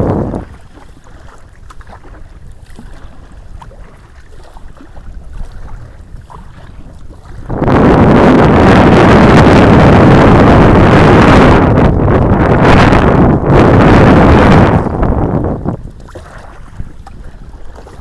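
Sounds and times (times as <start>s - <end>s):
water drips and splashes: 0.0s - 7.5s, 15.6s - 18.0s
wind rumbling on microphone: 0.0s - 18.0s.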